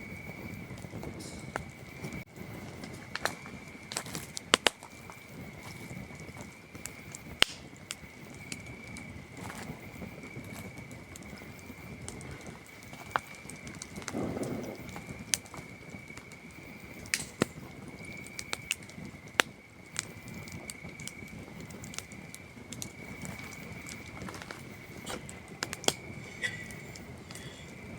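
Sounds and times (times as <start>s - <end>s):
campfire crackling and popping: 0.0s - 27.9s
crickets trilling: 0.0s - 27.9s
flame rushing: 0.0s - 27.9s.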